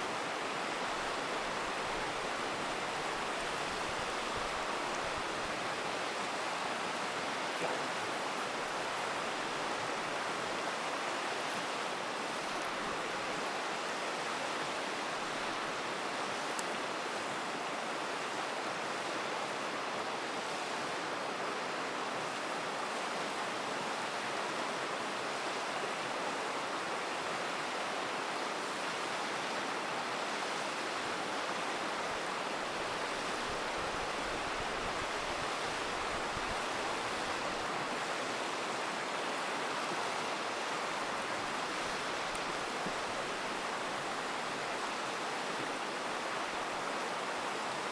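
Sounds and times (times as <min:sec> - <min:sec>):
river rushing: 0:00.0 - 0:47.9
campfire crackle: 0:40.4 - 0:43.7.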